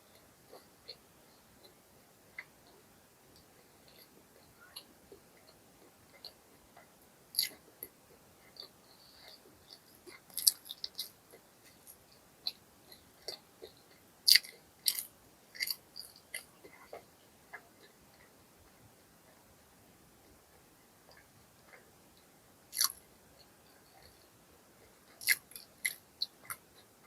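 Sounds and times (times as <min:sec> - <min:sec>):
crunchy chewing and biting: 0:04.8 - 0:18.3, 0:22.7 - 0:23.1, 0:25.0 - 0:26.9.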